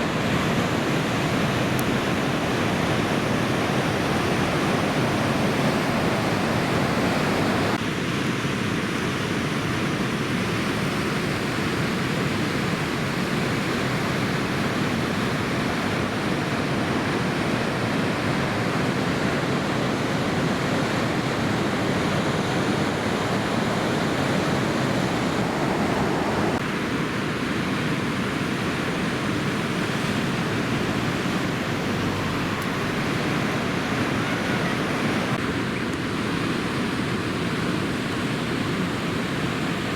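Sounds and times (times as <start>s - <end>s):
heavy surf breaking: 0.0s - 7.8s, 15.3s - 38.3s.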